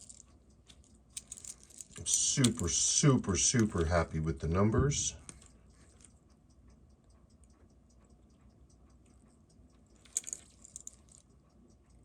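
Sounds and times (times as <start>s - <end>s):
watch movement ticking: 0.0s - 12.0s.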